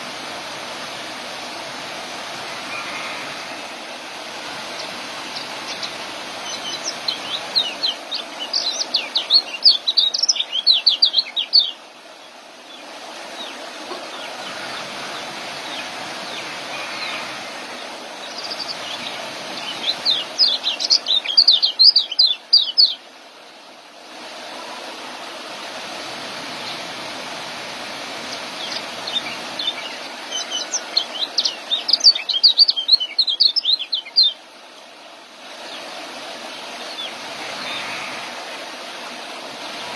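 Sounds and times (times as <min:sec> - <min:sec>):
steady hiss: 0:00.0 - 0:39.9
bird chirping trills: 0:04.8 - 0:11.8, 0:18.3 - 0:23.0, 0:28.6 - 0:34.4.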